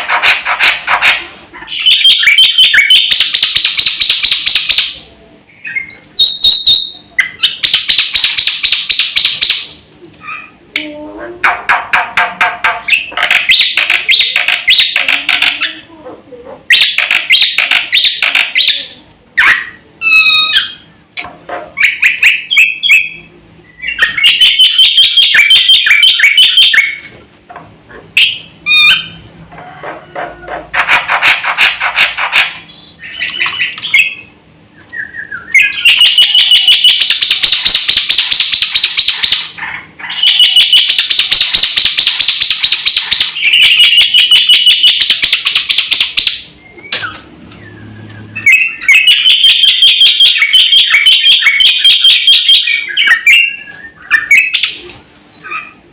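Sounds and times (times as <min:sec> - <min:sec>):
myna chattering song: 0:00.0 - 0:26.9.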